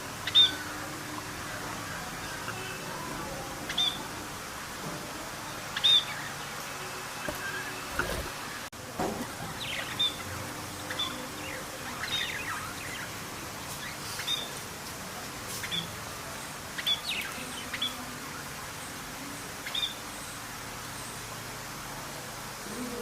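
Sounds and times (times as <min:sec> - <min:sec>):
steady background hiss: 0:00.0 - 0:23.0
parrot chirping: 0:09.6 - 0:13.2.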